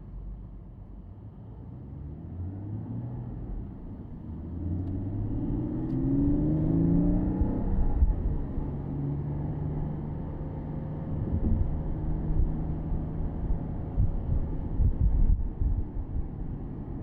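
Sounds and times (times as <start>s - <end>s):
car engine accelerating: 2.3s - 15.4s.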